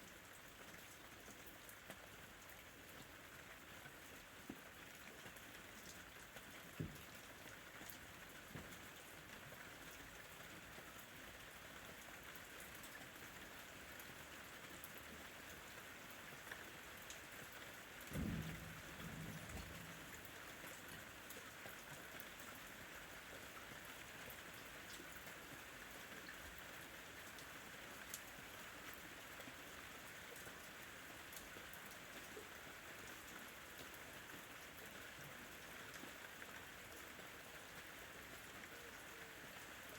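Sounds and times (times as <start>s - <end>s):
faint rain: 0.0s - 39.9s
distant thunder rumble: 18.1s - 20.3s.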